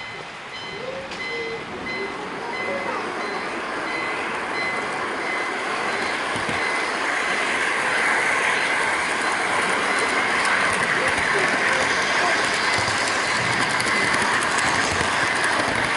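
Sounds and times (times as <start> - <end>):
faint high tone: 0.1 - 4.1
model train wheels rolling: 1.9 - 15.9.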